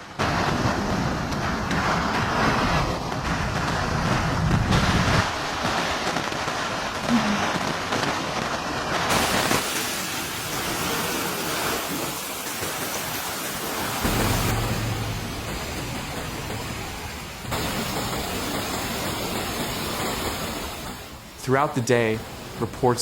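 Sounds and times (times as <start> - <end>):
heavy rain: 0.0 - 23.0
low steady hum: 14.0 - 17.5.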